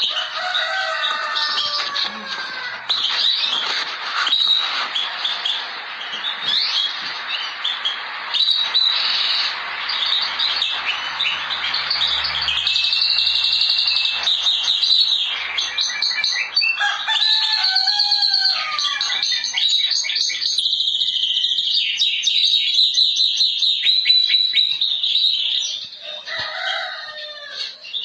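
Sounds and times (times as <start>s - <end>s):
rooster crowing: 0.0s - 3.0s, 16.8s - 19.1s, 26.0s - 27.8s
songbirds chirping: 0.0s - 28.0s.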